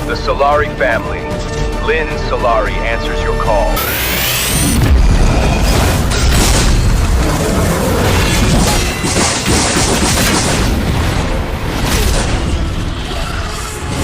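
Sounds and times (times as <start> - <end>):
dramatic music: 0.0 - 14.0
booming battle sound effects: 3.4 - 14.0.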